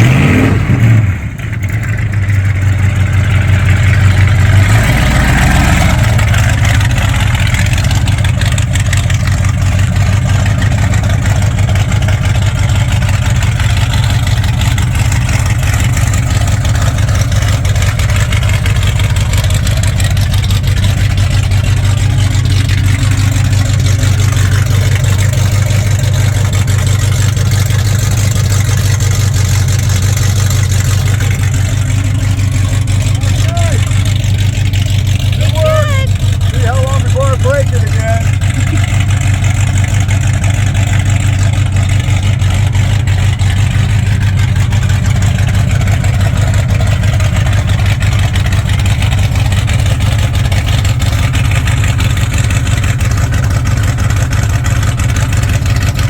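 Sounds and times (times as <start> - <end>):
pickup engine running: 0.0 - 56.0.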